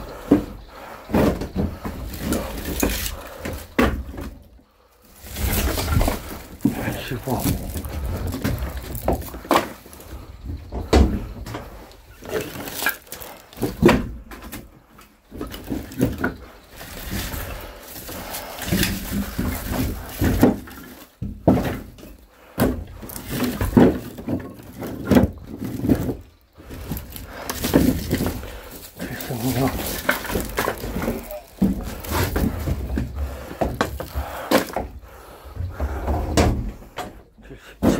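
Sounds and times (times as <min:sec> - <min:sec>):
firewood knocking and thudding: 0:00.0 - 0:37.9.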